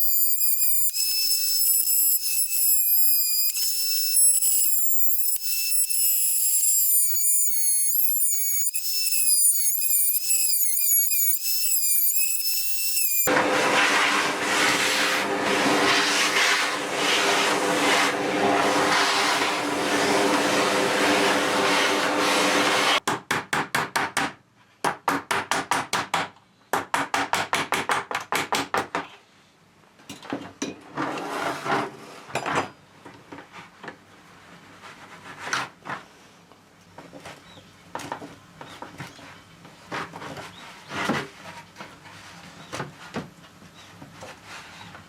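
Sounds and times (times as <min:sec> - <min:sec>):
power tool running: 0:00.0 - 0:23.0.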